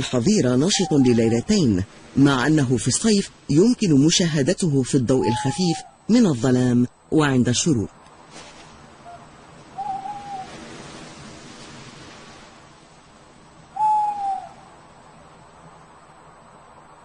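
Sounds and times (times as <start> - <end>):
owl hooting: 0.0 - 1.8, 5.1 - 6.2, 9.0 - 10.6, 13.7 - 14.8
faint hiss: 0.0 - 17.0.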